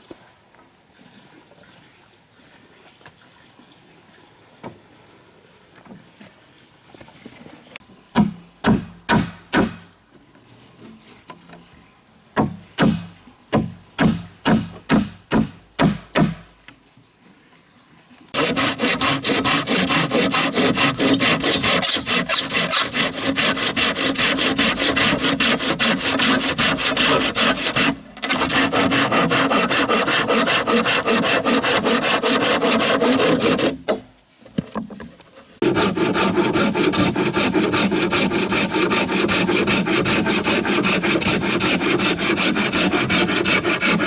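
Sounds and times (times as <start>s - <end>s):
chopping strikes on wood: 8.2s - 9.9s, 12.4s - 16.5s
scraping strokes on wood: 18.4s - 33.9s, 35.3s - 44.0s.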